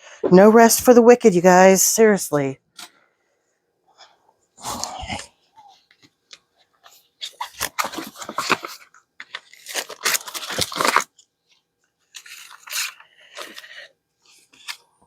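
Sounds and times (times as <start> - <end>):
paper crinkling and rustling: 5.9 - 15.0.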